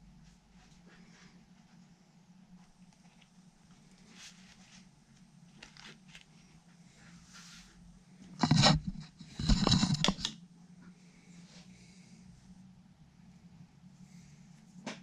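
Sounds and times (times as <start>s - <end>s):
steady low hum: 0.0s - 15.0s
scraping handling noise: 8.3s - 10.4s.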